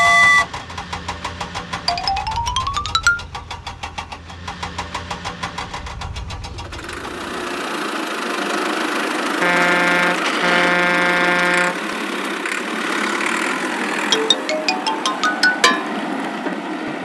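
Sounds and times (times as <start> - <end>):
cartoon vehicle engine chugging: 0.0 - 7.5
horn honking: 9.4 - 11.8.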